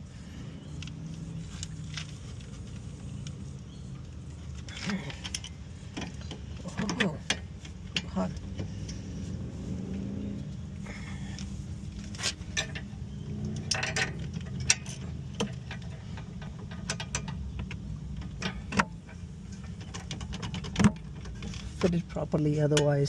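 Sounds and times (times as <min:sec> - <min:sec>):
steady low rumble: 0:00.0 - 0:23.0
metal tools clinking: 0:12.0 - 0:17.4.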